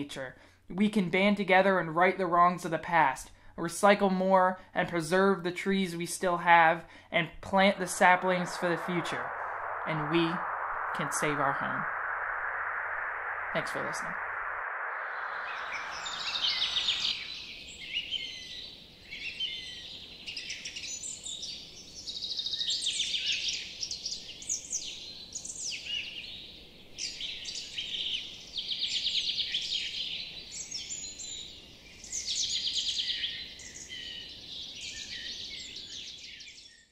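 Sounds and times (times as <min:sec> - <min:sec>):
birds singing: 0:15.1 - 0:36.9.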